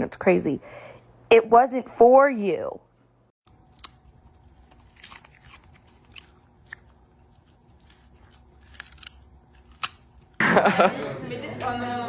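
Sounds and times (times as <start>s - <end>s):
low room hum: 0.0s - 12.0s
chewing crunches: 3.4s - 10.4s.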